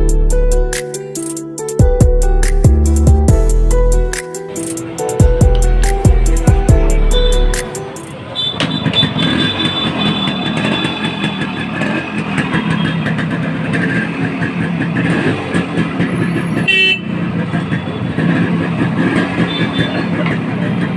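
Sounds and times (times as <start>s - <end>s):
vehicle engine running: 4.8s - 20.9s.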